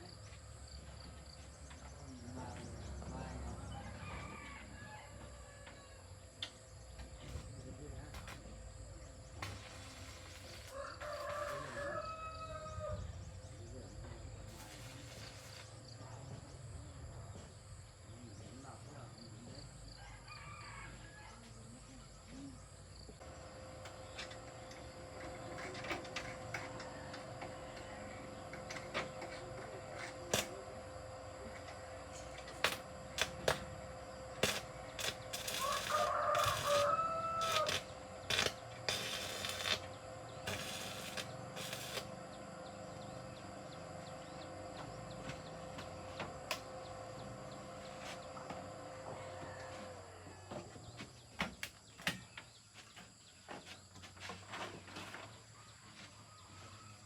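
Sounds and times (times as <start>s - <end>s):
rooster crowing: 3.7s - 6.2s, 10.6s - 13.1s, 19.9s - 21.6s, 25.5s - 28.5s, 34.4s - 42.1s, 48.2s - 50.8s
machine hum: 23.2s - 50.1s.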